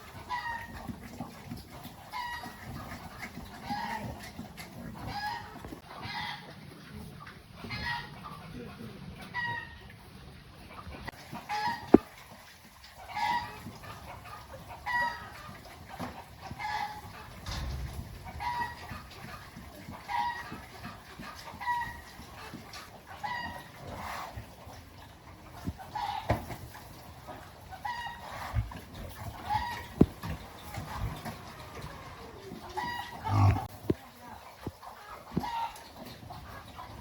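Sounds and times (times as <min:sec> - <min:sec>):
chicken calling: 0:31.4 - 0:33.7.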